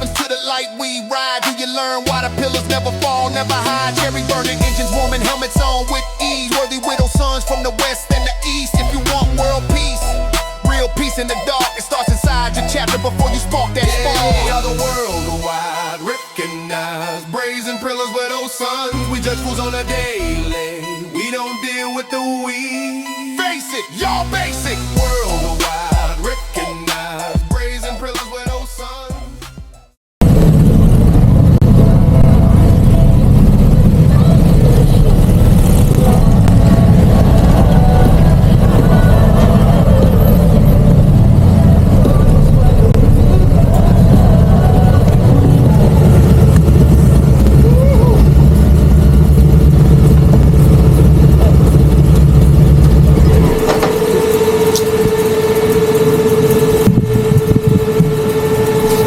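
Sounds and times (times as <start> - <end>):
steady higher hum: 0.0 - 16.3, 23.9 - 29.6, 30.2 - 59.0
vehicle engine and road rumble: 30.2 - 59.0
wind on microphone: 30.2 - 59.0.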